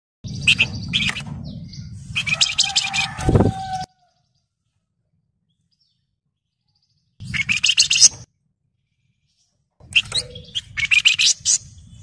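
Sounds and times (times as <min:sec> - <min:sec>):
low rumble: 0:00.2 - 0:03.8
bird chirping: 0:00.2 - 0:04.8, 0:05.4 - 0:12.0.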